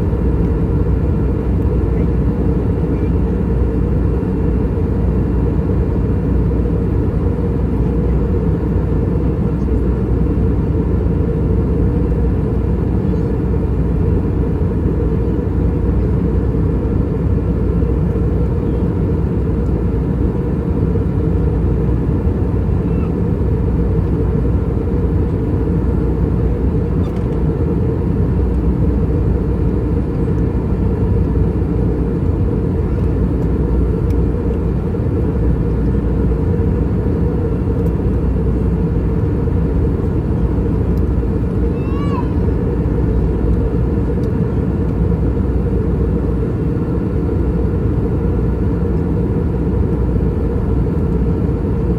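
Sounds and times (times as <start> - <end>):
jet engines droning in cabin: 0.0 - 51.9.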